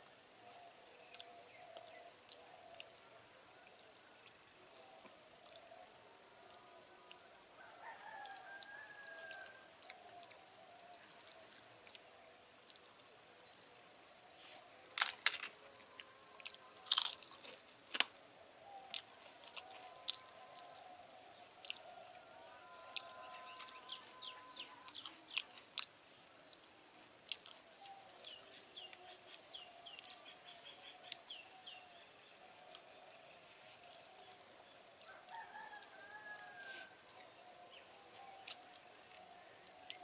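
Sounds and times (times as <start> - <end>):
bird chirping: 0.0 - 26.6, 27.3 - 40.0
crisp crunching: 14.9 - 18.1
wet chewing: 15.0 - 18.1, 18.9 - 20.9, 21.6 - 22.0, 27.3 - 27.6.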